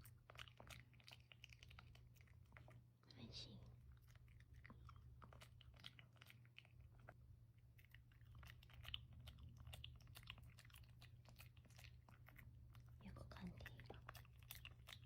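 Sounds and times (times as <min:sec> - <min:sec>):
dog chewing and crunching food: 0:00.0 - 0:15.0.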